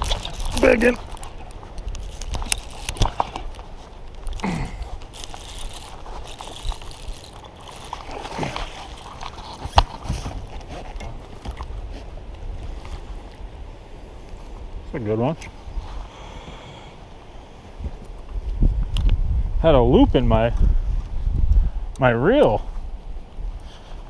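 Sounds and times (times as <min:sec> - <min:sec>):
water sloshing around boat: 0:00.0 - 0:04.1, 0:04.8 - 0:12.1.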